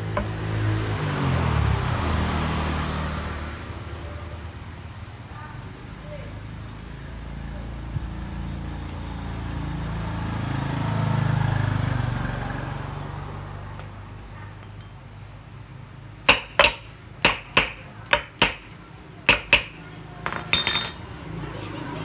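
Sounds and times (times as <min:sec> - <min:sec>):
metal parts clinking: 0:14.6 - 0:15.2, 0:20.2 - 0:21.1.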